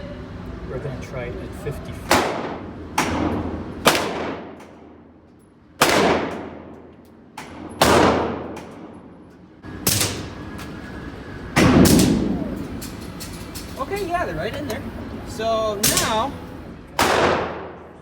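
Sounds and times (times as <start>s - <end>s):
pistol shots with echo: 2.1s - 4.8s, 5.8s - 6.7s, 7.4s - 8.9s, 17.0s - 18.0s.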